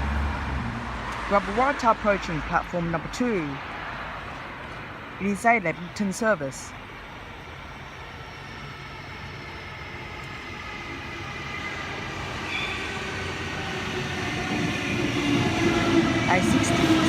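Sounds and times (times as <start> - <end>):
electric train approaching: 0.0 - 17.0
faint train whine: 1.3 - 17.0.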